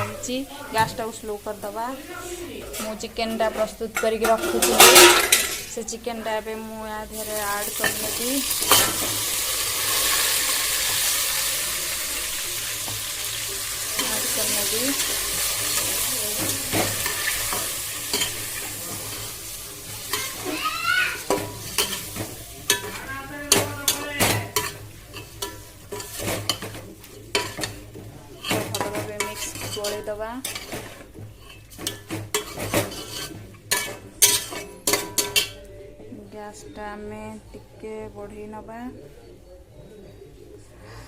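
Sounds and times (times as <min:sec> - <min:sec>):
chicken sizzling in hot oil: 0:07.1 - 0:34.8
spatula scraping a pan: 0:12.9 - 0:35.6.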